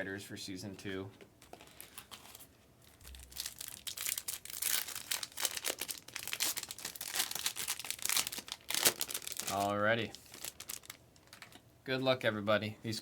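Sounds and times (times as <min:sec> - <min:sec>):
plastic wrapping crinkling and tearing: 0:01.5 - 0:11.6.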